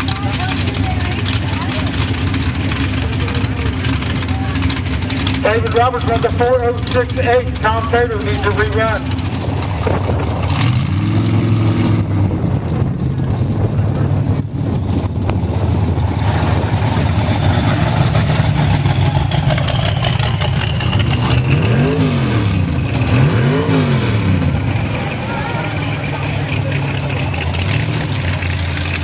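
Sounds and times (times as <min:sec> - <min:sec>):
engine throttle blips: 0:00.0 - 0:29.0
truck engine idling: 0:00.0 - 0:29.0.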